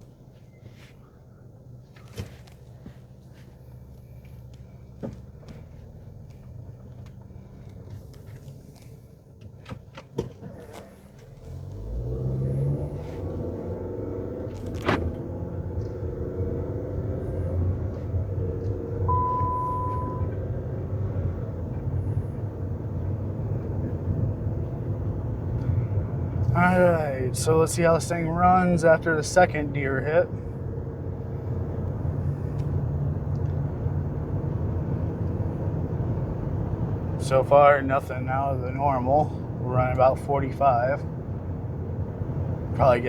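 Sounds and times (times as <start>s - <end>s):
car engine: 0.0s - 43.0s
road rumble: 0.0s - 43.0s
short steady beep: 19.1s - 20.4s.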